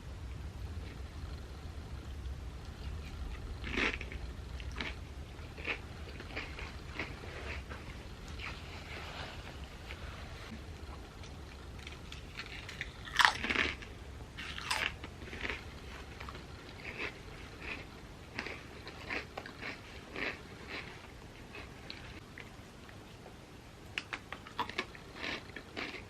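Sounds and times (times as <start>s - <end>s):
crunchy chewing: 0.8s - 22.5s, 24.0s - 26.0s
crisp chips crunching: 3.6s - 5.0s, 11.8s - 15.7s, 24.0s - 26.0s.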